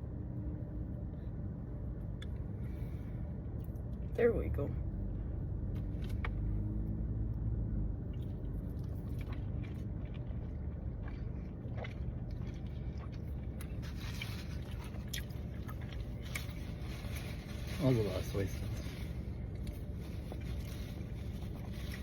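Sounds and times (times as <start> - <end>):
steady low rumble: 0.0 - 22.0
person chewing food: 8.1 - 17.2.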